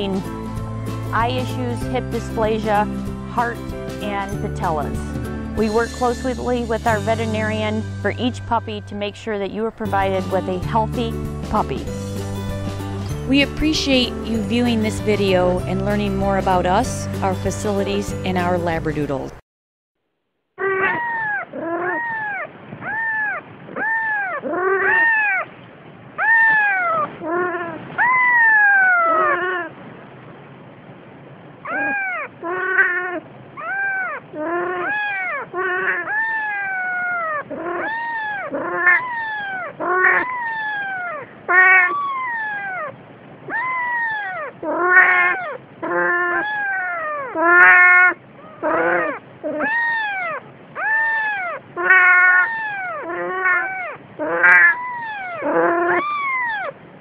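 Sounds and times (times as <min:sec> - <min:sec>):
cat meowing: 0:31.7 - 0:42.9, 0:43.5 - 0:56.7.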